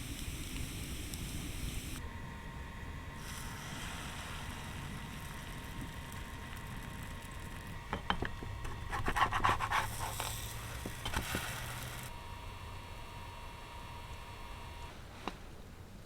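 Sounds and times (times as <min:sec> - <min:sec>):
sizzling hiss: 0:00.0 - 0:15.3
utensil scraping on cookware: 0:07.9 - 0:12.1.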